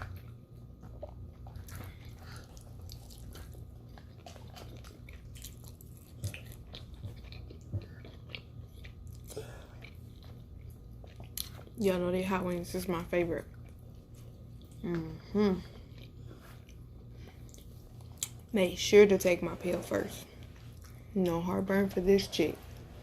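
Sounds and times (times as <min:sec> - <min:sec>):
chewing and biting food: 0:00.0 - 0:11.8, 0:13.3 - 0:18.5
low steady hum: 0:00.0 - 0:23.0.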